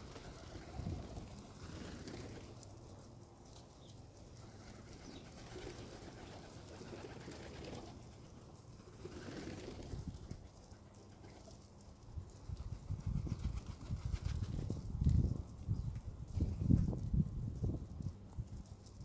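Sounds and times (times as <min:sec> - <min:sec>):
pigeons cooing: 0:00.0 - 0:02.5.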